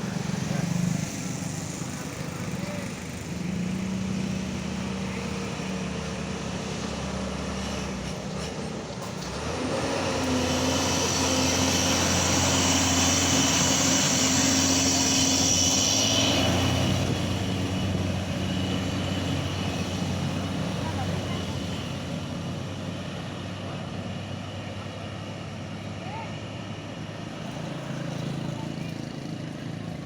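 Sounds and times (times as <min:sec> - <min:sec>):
heavy truck engine running: 0:00.0 - 0:30.0
hiss: 0:09.9 - 0:17.6.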